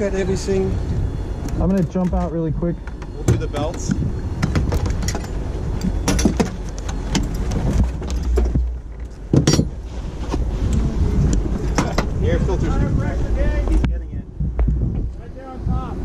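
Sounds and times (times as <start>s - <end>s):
wind buffeting microphone: 0.0s - 16.0s
seat harness buckle jangling: 4.4s - 9.7s.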